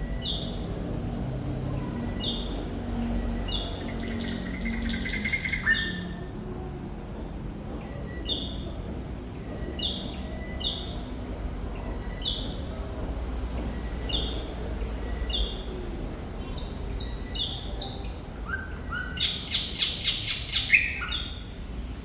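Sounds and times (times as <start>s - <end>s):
thrush nightingale singing: 3.4s - 6.2s, 17.0s - 21.7s.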